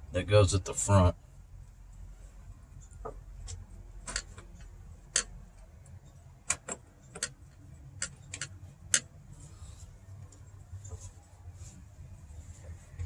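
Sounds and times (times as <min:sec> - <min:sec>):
small hardware clicking: 0:06.5 - 0:09.1.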